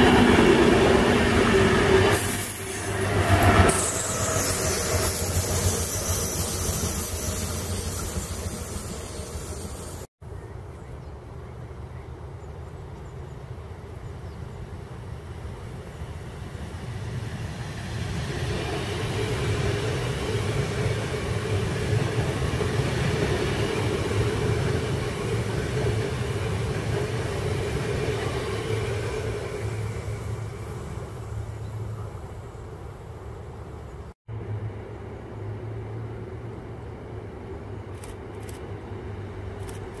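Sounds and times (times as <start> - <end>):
train wheels rumbling on rails: 0.0 - 10.1, 15.3 - 31.6
train hum: 0.0 - 40.0.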